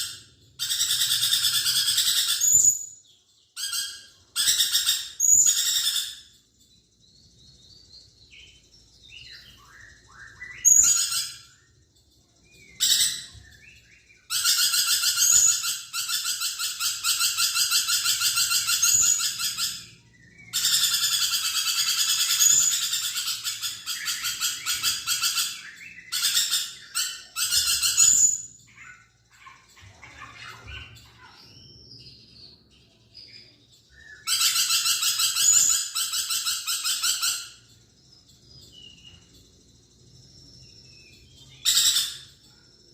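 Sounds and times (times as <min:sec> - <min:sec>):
lorikeet screeching: 0:00.0 - 0:03.0, 0:03.6 - 0:06.4, 0:09.3 - 0:11.6, 0:12.6 - 0:13.6, 0:14.2 - 0:31.7, 0:33.9 - 0:37.7, 0:41.3 - 0:42.4
soft bird twittering: 0:00.0 - 0:42.9.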